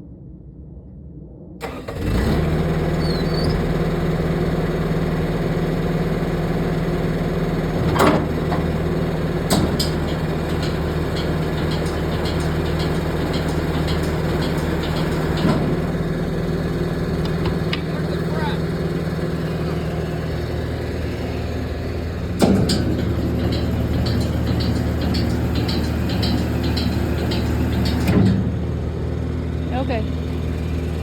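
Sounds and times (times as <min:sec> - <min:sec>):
skid steer engine running: 0:01.6 - 0:31.0
sharp knocks: 0:07.8 - 0:28.6.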